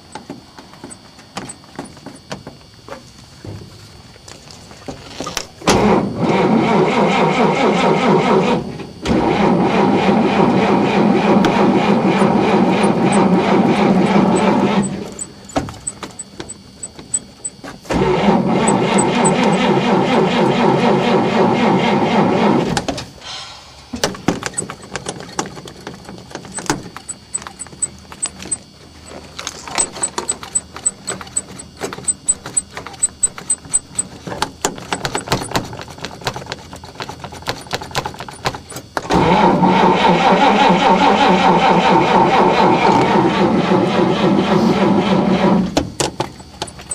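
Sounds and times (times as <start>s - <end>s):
car engine cranking: 5.1s - 23.2s, 23.9s - 46.9s.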